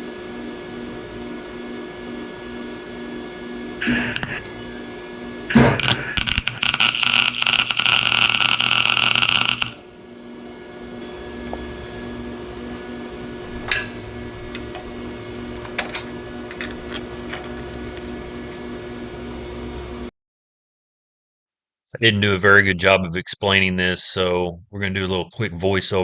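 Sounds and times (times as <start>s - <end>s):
steady electrical hum: 3.7s - 20.0s
welder arc crackling: 3.8s - 4.5s, 5.5s - 9.8s.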